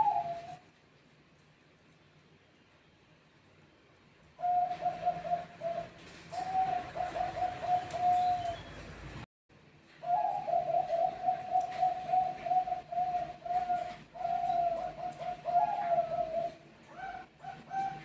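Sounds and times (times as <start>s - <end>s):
doves cooing: 0.0s - 0.7s, 4.4s - 8.9s, 10.0s - 18.0s.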